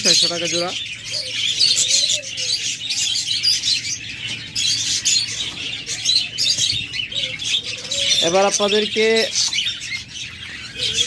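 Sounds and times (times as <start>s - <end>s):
budgerigars chattering and chirping: 0.0s - 11.0s.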